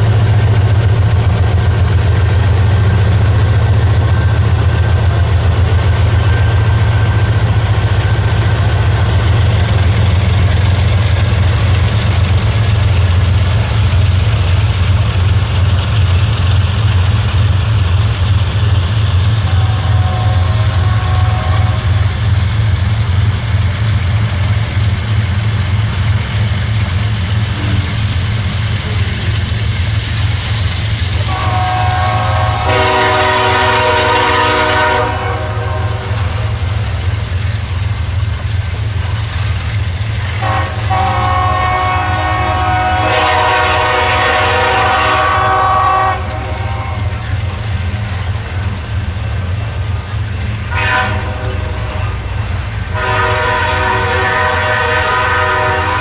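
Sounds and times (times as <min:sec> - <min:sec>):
diesel locomotive engines rumbling: 0:00.0 - 0:56.0
train horn: 0:19.2 - 0:22.2, 0:31.1 - 0:36.6, 0:40.2 - 0:47.4, 0:50.6 - 0:56.0.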